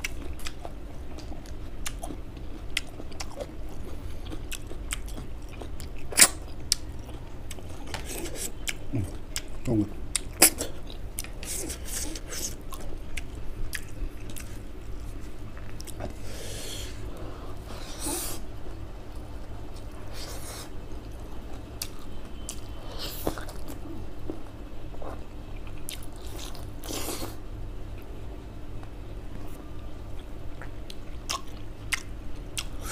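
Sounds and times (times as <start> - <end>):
man chewing and biting: 0.0 - 16.8.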